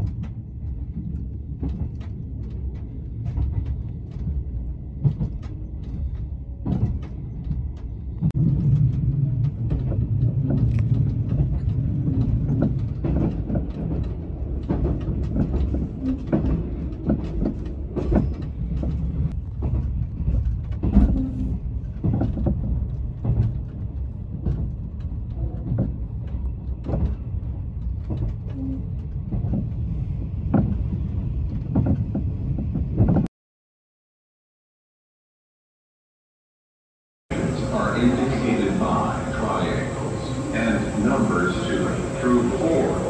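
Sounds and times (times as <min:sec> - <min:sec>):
train wheels rumbling: 0:00.0 - 0:33.3, 0:37.3 - 0:43.0
wheels clicking over rail joints: 0:00.0 - 0:33.3.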